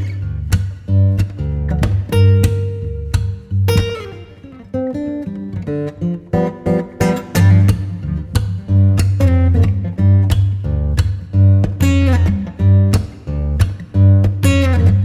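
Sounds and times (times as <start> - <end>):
deep bass line: 0.0 - 3.9, 7.4 - 15.0
plucked acoustic guitar: 0.0 - 15.0.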